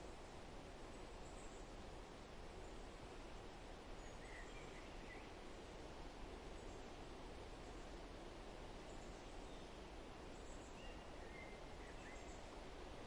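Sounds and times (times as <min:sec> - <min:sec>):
faint bird chirps: 0:04.0 - 0:05.4, 0:08.8 - 0:12.6.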